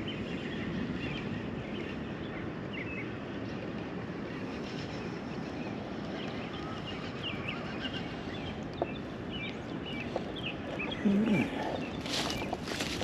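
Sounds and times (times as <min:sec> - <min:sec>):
wind buffeting microphone: 0:00.0 - 0:13.0
small birds chirping: 0:04.5 - 0:13.0.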